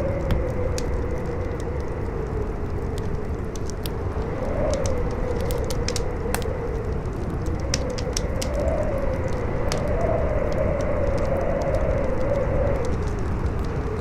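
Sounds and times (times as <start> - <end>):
campfire crackling: 0.0 - 14.0
strong wind howling: 0.0 - 14.0.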